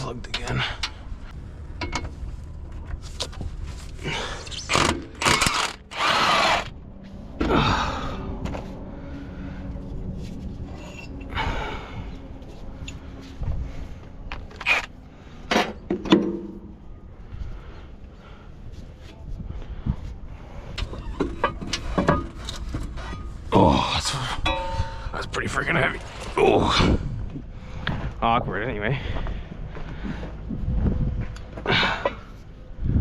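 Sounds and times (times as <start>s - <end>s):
metal engine parts clicking: 4.5s - 6.2s.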